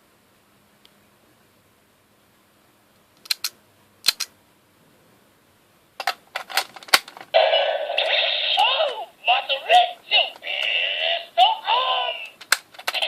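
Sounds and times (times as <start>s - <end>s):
plastic toy clicks: 3.2s - 4.3s, 12.3s - 13.0s
toy electronic voice: 7.4s - 13.0s.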